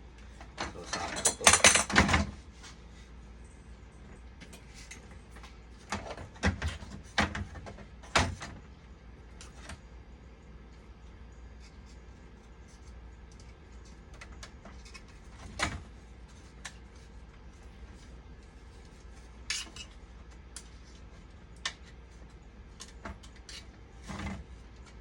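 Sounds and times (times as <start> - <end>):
low steady hum: 0.0 - 25.0
tools and parts clicking: 0.6 - 2.1.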